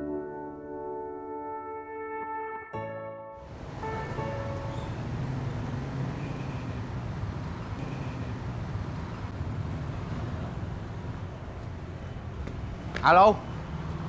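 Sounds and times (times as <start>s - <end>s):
low rumble of road traffic: 3.4s - 14.0s.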